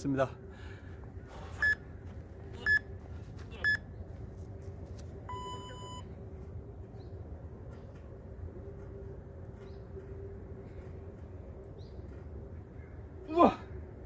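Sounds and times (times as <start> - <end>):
timer long low beep: 5.3 - 6.1.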